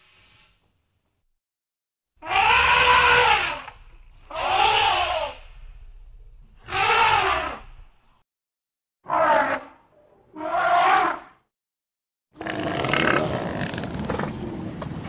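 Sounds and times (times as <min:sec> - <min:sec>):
elephant squealing: 0:02.2 - 0:03.7, 0:04.3 - 0:05.4, 0:06.6 - 0:07.7, 0:10.3 - 0:11.3.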